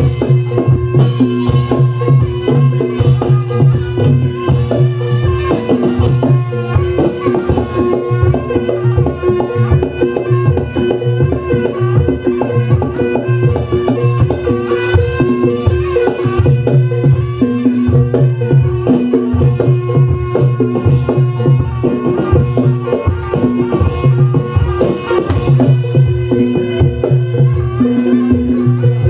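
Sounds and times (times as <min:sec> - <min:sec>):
drums beating: 0:00.0 - 0:29.0
gamelan percussion: 0:00.0 - 0:29.0.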